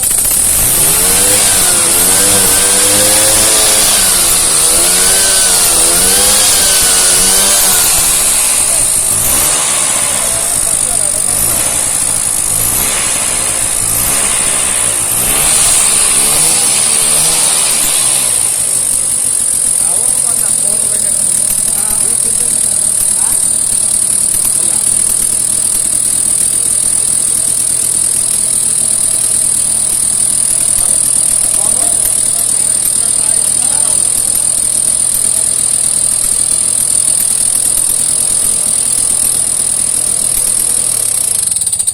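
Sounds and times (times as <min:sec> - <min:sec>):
high-pitched whine: 0:00.0 - 0:41.9
scooter engine revving: 0:00.0 - 0:41.9.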